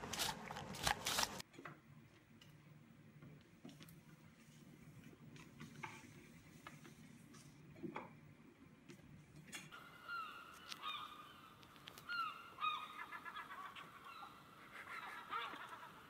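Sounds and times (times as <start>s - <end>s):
bird calling in slurred notes: 9.8s - 16.0s.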